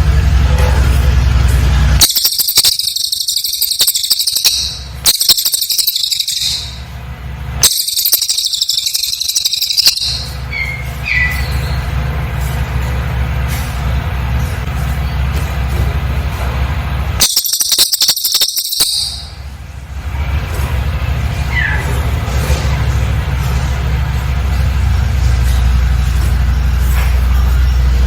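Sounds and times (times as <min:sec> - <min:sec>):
steady low hum: 0:00.0 - 0:28.0
songbird trilling: 0:02.0 - 0:06.9, 0:07.6 - 0:12.0, 0:17.2 - 0:19.4
bird chirps: 0:02.0 - 0:07.0, 0:07.6 - 0:12.0, 0:17.2 - 0:19.4.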